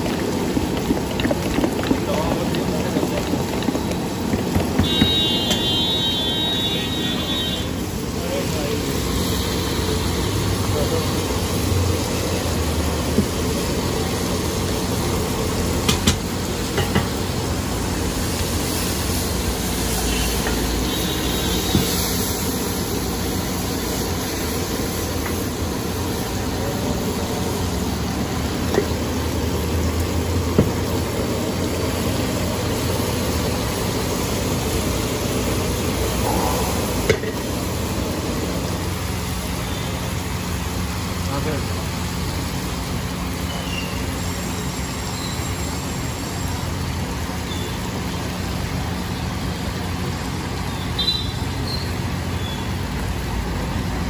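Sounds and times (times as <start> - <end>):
curry sizzling on a griddle: 0.0 - 54.0
ladle clanking on griddle: 15.8 - 17.2.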